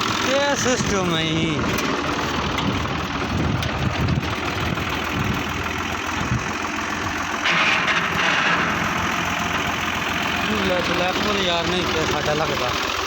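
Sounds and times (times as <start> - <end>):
tractor diesel engine rumbling: 0.0 - 13.0.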